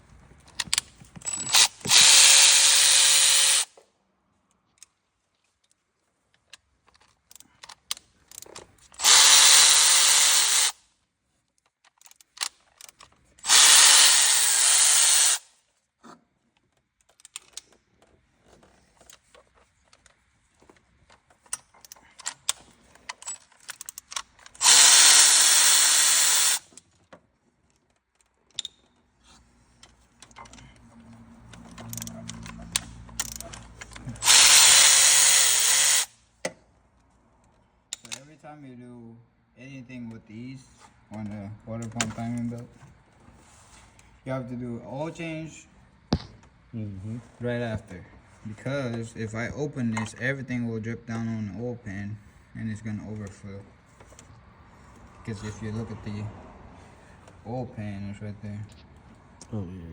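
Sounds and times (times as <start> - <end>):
handheld power tool running: 1.3 - 3.7, 9.0 - 10.8, 13.4 - 15.4, 24.6 - 26.7, 34.1 - 36.1.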